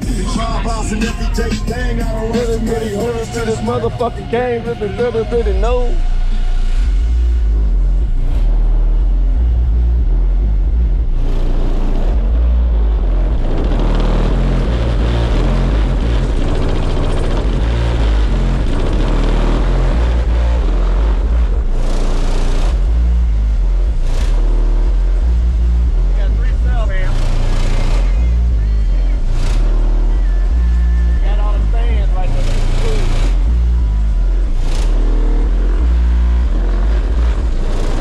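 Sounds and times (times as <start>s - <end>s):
bass-heavy music from subwoofers: 0.0s - 38.0s.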